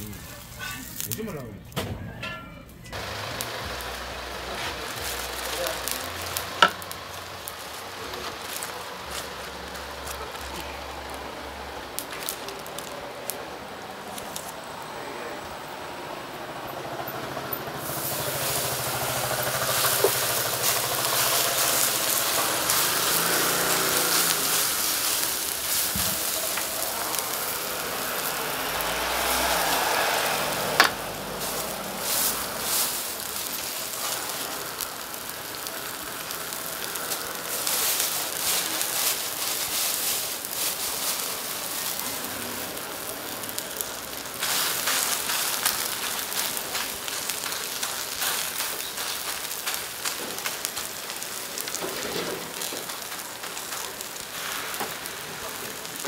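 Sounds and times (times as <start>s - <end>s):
batter sizzling on hot griddle: 0.0s - 1.6s, 2.9s - 56.0s
hand mixing batter in steel bowl: 17.8s - 42.7s.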